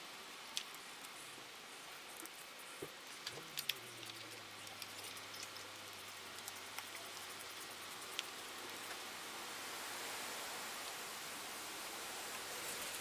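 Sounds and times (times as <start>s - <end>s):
faint low hum: 0.0s - 9.4s
steady hiss: 0.0s - 13.0s.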